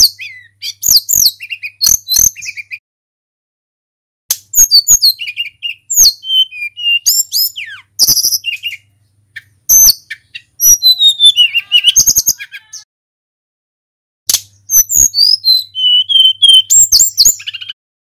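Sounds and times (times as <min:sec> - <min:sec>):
bird whistling and trilling: 0:00.0 - 0:02.8, 0:04.5 - 0:12.9, 0:14.6 - 0:17.8.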